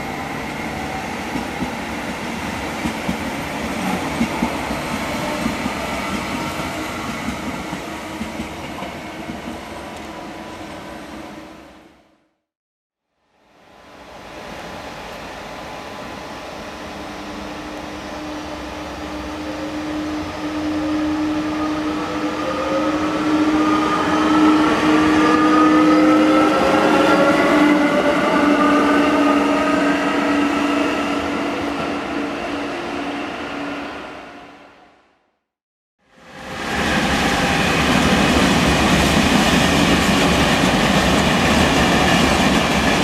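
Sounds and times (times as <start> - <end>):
train accelerating past: 13.6 - 34.9, 36.1 - 43.0.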